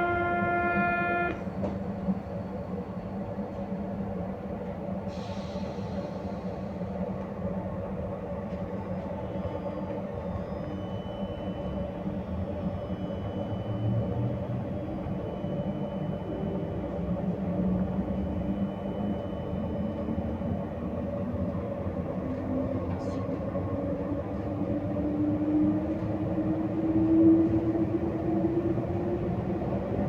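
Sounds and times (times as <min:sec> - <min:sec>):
train whine rising in pitch: 0:00.0 - 0:03.2
train rumbling inside carriage: 0:00.0 - 0:30.0.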